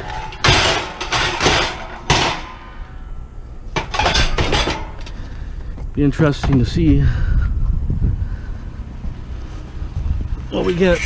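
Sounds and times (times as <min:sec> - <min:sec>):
scrap metal clattering: 0:00.0 - 0:05.6.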